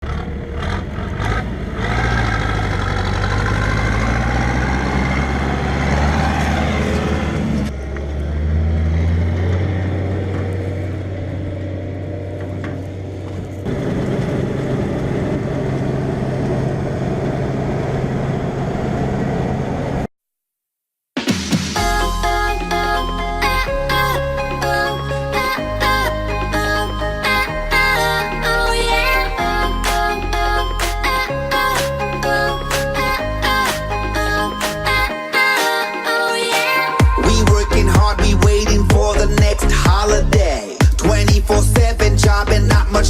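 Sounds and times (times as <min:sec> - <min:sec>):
diesel engine under load: 0:00.0 - 0:20.1, 0:37.0 - 0:43.0.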